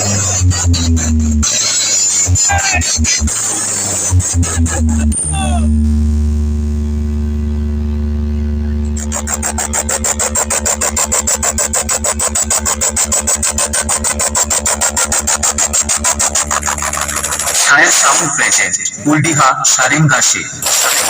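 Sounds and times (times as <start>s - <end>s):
deep bass tone: 0.0s - 18.4s
fast stutter pulse: 0.0s - 18.8s, 19.7s - 21.0s
vocal snippets: 2.3s - 5.8s, 8.6s - 19.1s.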